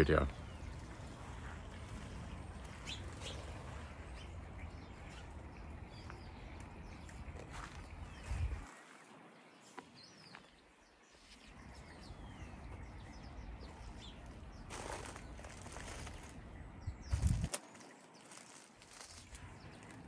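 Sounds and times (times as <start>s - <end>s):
birds chirping: 0.0s - 20.0s
low rumbles on the microphone: 6.0s - 8.6s, 11.7s - 17.5s.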